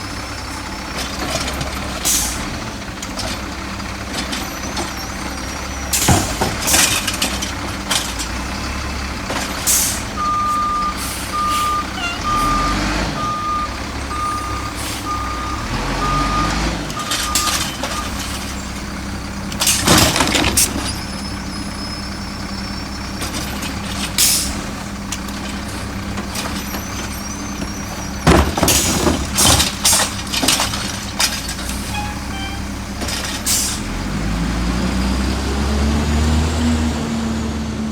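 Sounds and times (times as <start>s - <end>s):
garbage truck running: 0.0s - 37.9s
backup alarm beeping: 10.2s - 18.2s, 31.9s - 32.8s.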